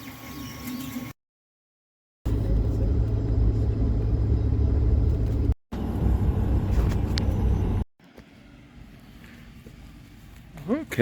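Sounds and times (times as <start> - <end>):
tractor engine rumbling: 2.3 - 7.8.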